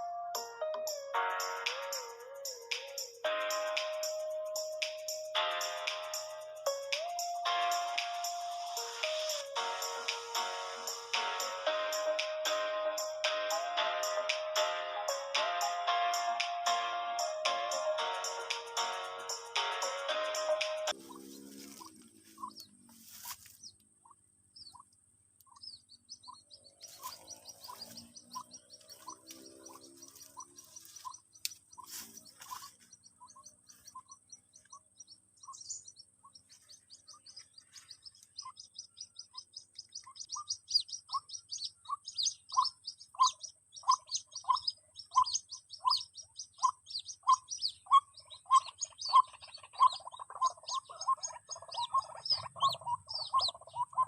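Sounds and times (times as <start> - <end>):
high bird chirping: 0.0 - 54.0
bird peeping: 20.5 - 54.0.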